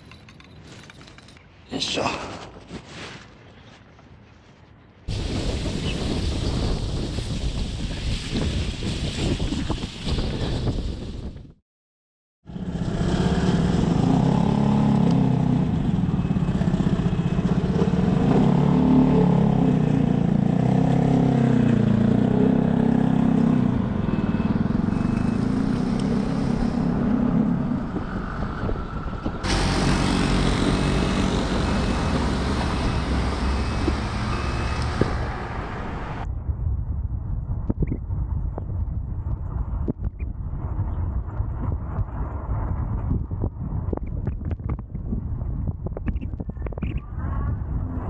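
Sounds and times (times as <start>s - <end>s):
motor engine running: 29.0s - 36.1s.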